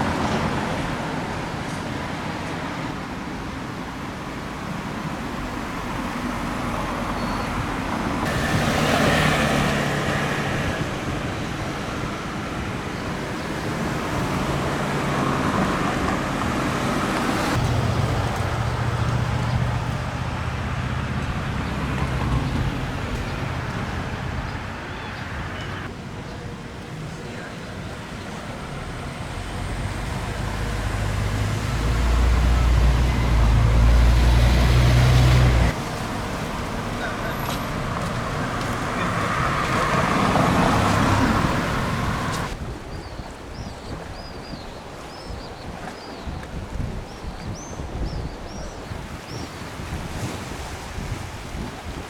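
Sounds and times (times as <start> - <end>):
vehicles driving past: 0.0 - 42.7
engine low hum: 17.6 - 25.9.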